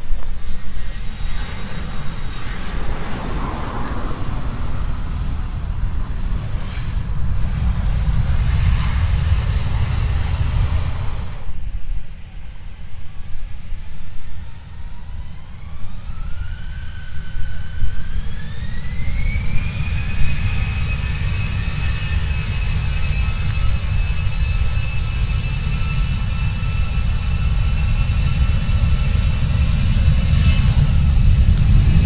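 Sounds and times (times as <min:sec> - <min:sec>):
jet engine whine: 0:00.0 - 0:32.0
heavy low engine rumble: 0:00.3 - 0:11.5, 0:20.2 - 0:32.0.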